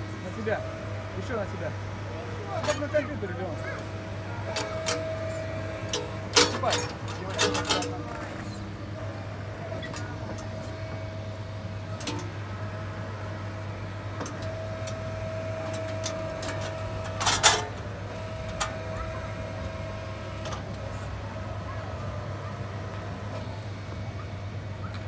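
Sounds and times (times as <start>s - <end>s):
excavator ride motor humming: 0.0s - 25.0s
hydraulic whine: 0.0s - 25.0s.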